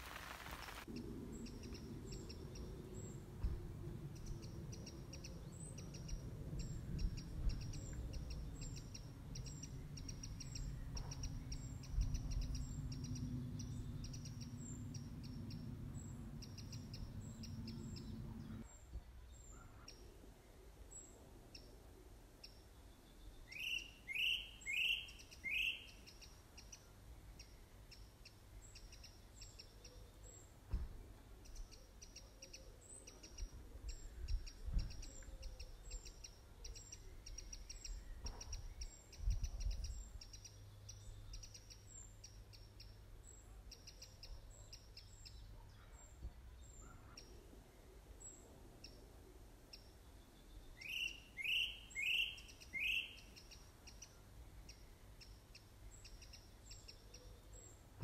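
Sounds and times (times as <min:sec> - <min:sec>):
birds chirping: 0:00.0 - 0:21.7, 0:22.4 - 0:30.8, 0:49.7 - 0:58.0.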